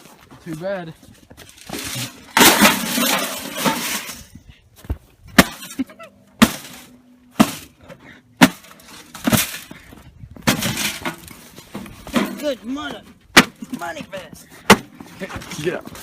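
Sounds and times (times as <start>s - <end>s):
glass and metal crashing: 1.7s - 4.3s.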